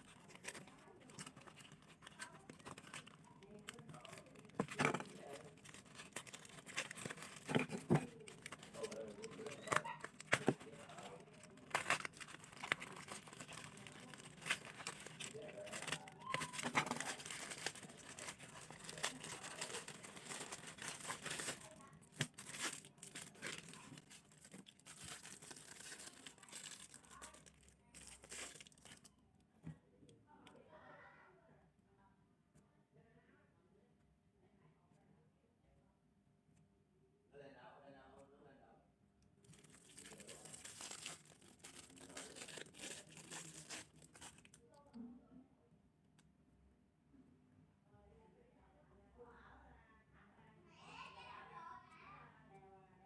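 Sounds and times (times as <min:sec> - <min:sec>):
plastic packaging crinkling: 0:00.0 - 0:29.1, 0:39.4 - 0:44.6.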